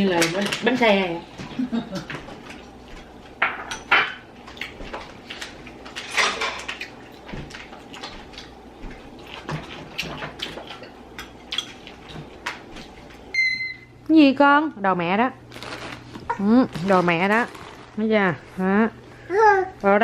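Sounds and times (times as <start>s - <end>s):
cutlery and dishes clinking: 6.0s - 6.8s.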